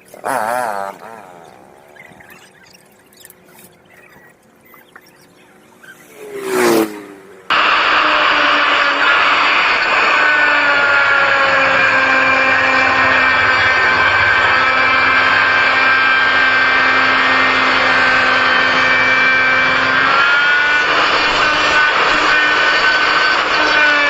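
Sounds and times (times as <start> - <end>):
power tool motor running: 6.0 - 24.0.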